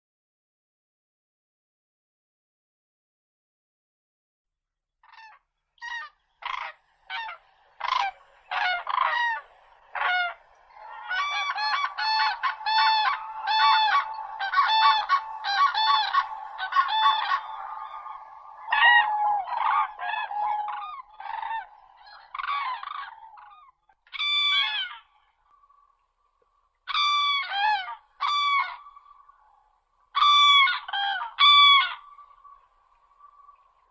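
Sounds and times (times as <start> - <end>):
cranes trumpeting: 7.1 - 23.4.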